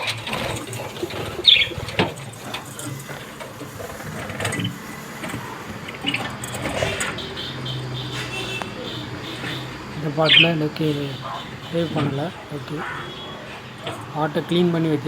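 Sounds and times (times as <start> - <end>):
lovebird chirp: 1.1 - 2.1, 6.9 - 13.2.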